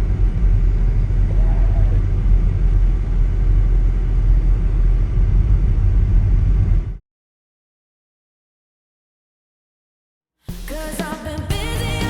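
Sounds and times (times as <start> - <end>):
loud low rumble: 0.0 - 7.0.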